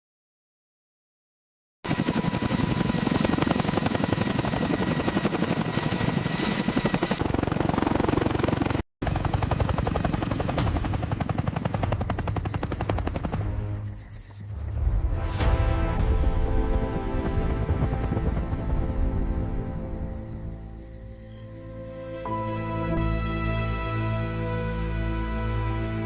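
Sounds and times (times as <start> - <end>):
helicopter rotor chopping: 1.9 - 14.4, 16.4 - 20.2.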